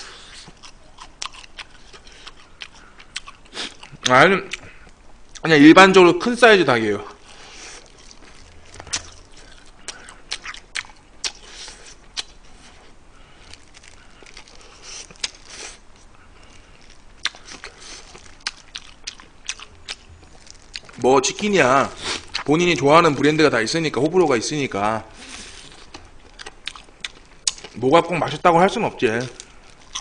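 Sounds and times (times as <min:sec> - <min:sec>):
chewing crispy fried chicken: 0:00.0 - 0:05.5, 0:07.2 - 0:22.9, 0:25.2 - 0:30.0.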